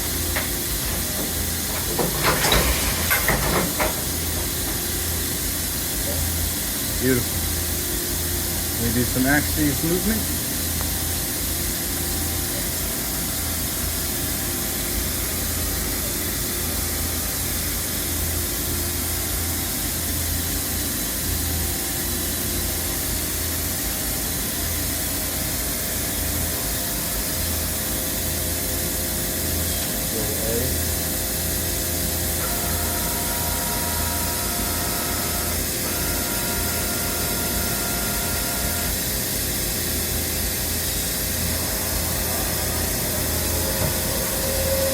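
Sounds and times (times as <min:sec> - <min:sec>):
machine whine: 0:00.0 - 0:44.9
milling machine hiss and hum: 0:00.0 - 0:44.9.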